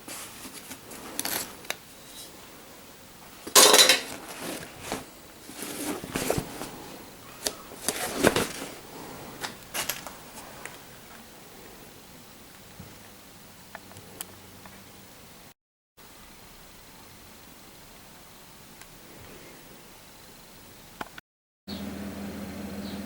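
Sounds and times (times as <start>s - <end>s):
metal parts clinking: 3.5s - 4.2s.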